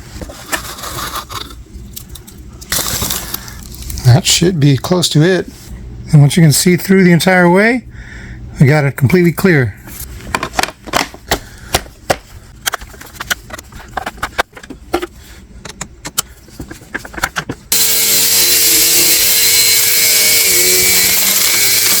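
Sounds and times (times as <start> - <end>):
upright vacuum cleaner running: 17.7 - 22.0.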